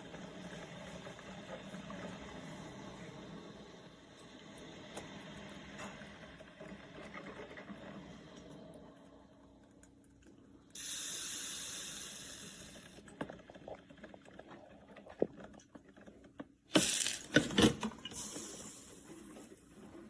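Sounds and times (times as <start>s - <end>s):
water hissing in bursts: 10.8s - 13.0s, 16.8s - 17.3s.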